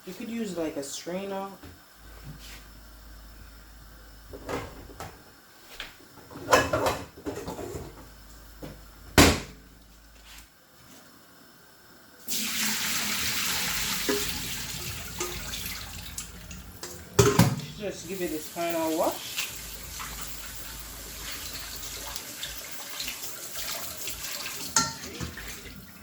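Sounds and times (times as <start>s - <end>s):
tap water running into sink: 12.3s - 26.0s
kitchen things knocking: 16.8s - 17.8s.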